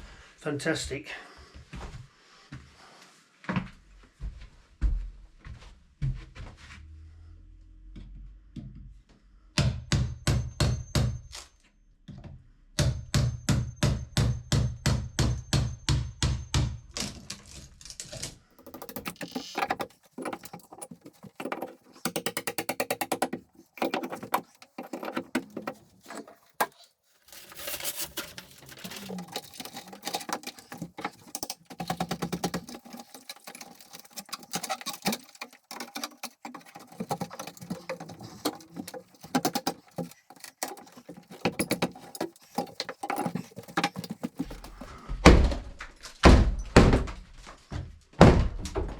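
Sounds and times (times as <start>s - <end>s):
tools knocking on wood: 18.6s - 26.8s, 28.2s - 45.0s.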